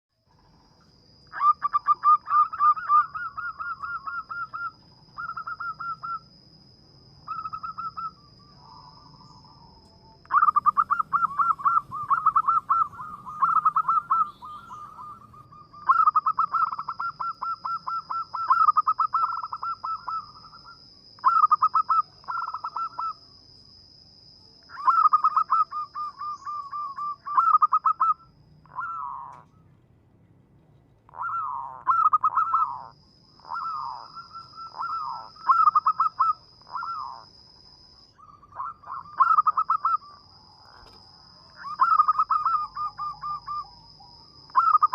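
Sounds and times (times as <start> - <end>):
faint high whine: 0.1 - 44.9
dove cooing: 1.3 - 6.3, 7.3 - 9.6, 10.2 - 23.2, 24.7 - 29.7, 31.1 - 37.3, 38.2 - 41.0, 41.6 - 44.9.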